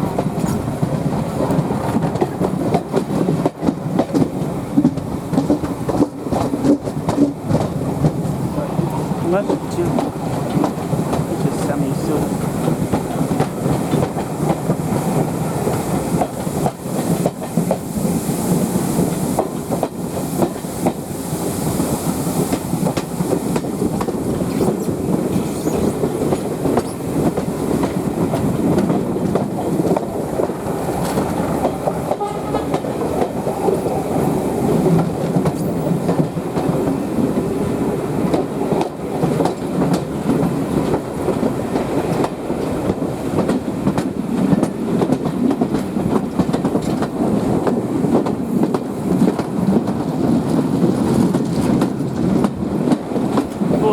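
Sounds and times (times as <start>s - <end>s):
rail joint clicks and rattles: 0.0s - 53.9s
train wheels rumbling on rail: 0.0s - 53.9s.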